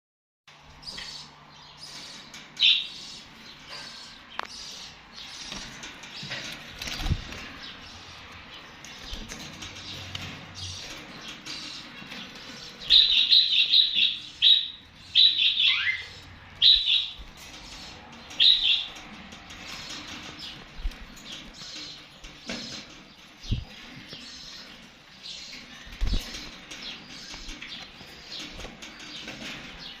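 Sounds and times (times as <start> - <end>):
young birds chirping: 0.6 - 30.0
young nightingales chirping: 12.8 - 17.2.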